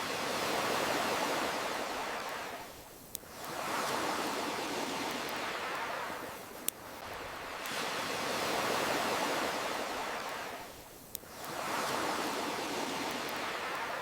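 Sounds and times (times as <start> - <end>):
ocean waves washing in: 0.0 - 14.0
campfire crackling pops: 2.2 - 4.0, 4.9 - 8.1, 10.2 - 13.9.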